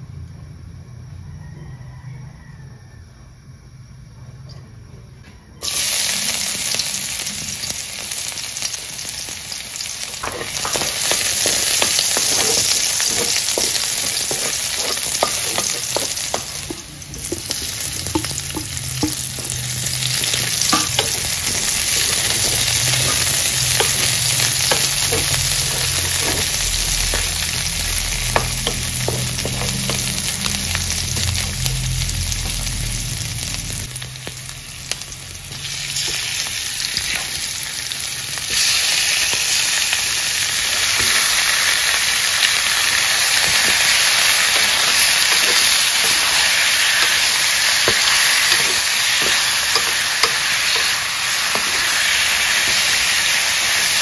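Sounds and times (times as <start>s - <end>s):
garlic and onion sizzling in oil: 5.6s - 54.0s
spatula scraping a pan: 10.2s - 31.7s, 43.0s - 53.1s.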